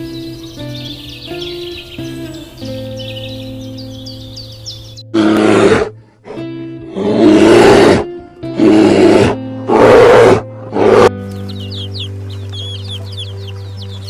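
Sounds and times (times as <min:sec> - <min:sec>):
background music: 0:00.0 - 0:14.0
lion roaring: 0:05.1 - 0:11.1.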